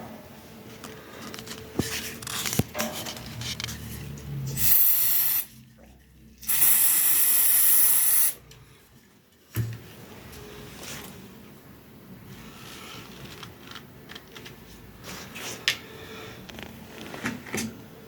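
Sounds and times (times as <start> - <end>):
aerosol spray hissing: 4.6 - 5.5, 6.4 - 8.4.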